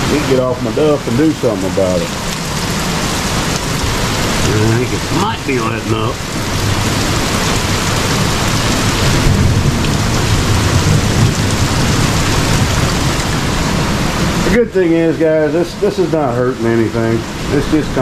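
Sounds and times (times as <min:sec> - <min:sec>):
torrential rain pouring: 0:00.0 - 0:18.0
low rumble: 0:02.4 - 0:14.4.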